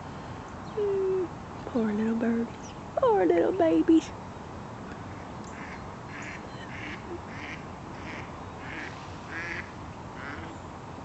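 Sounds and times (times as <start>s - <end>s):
ducks quacking: 5.5s - 10.5s.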